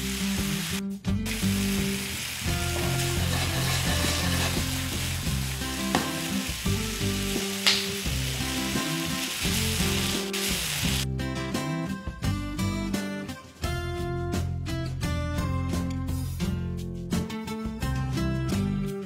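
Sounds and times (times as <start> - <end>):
sharp hiss: 0.0 - 11.0
chicken sizzling in oil: 0.0 - 11.1
low background music: 0.0 - 19.0.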